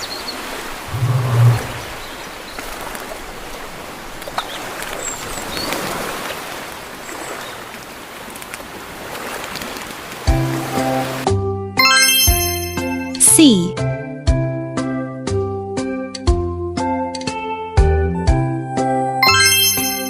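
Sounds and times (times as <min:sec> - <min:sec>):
rushing water: 0:00.0 - 0:12.0
children's music jingle: 0:11.8 - 0:13.8, 0:19.1 - 0:20.0.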